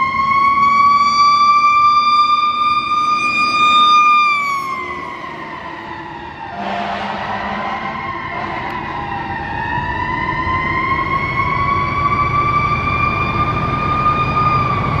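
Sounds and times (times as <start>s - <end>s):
truck engine rumble: 0.0s - 15.0s
mechanical siren winding up: 1.0s - 5.1s.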